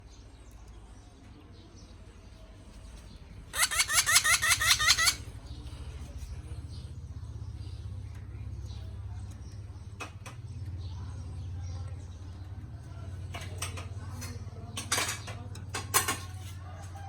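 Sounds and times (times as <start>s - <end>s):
parrot shrill calls: 3.5s - 5.3s.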